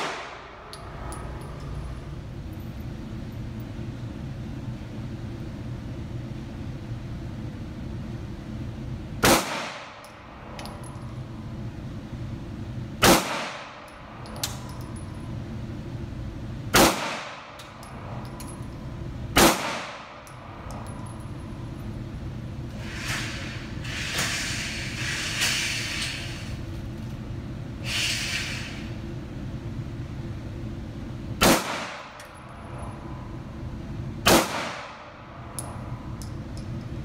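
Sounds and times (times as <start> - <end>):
handgun shots ringing indoors: 0.0 - 1.7, 9.2 - 10.9, 13.0 - 15.0, 16.7 - 18.7, 19.4 - 21.0, 31.4 - 32.4, 34.2 - 36.4
steady low hum: 0.0 - 37.0.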